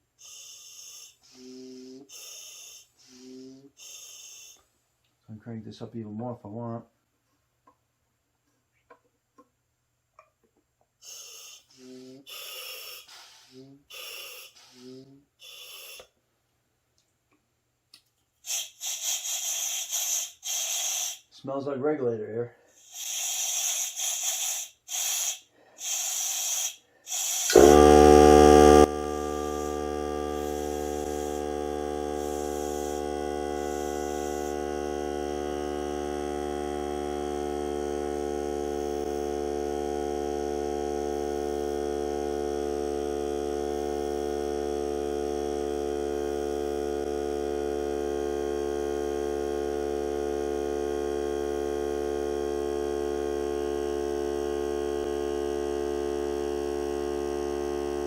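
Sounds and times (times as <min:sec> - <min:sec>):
air compressor motor humming: 0:00.0 - 0:04.6, 0:11.0 - 0:16.0, 0:22.9 - 0:58.0.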